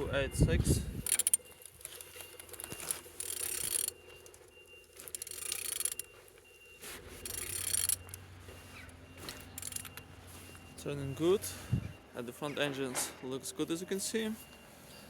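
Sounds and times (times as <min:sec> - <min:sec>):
engine turned over by hand rasping: 0:01.0 - 0:04.0, 0:05.0 - 0:06.1, 0:07.0 - 0:08.2, 0:09.2 - 0:10.0.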